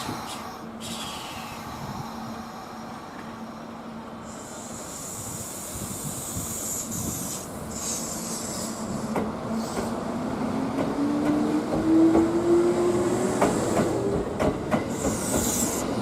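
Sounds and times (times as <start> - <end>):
electric train hum: 0.0 - 16.0
high hiss: 4.2 - 9.9.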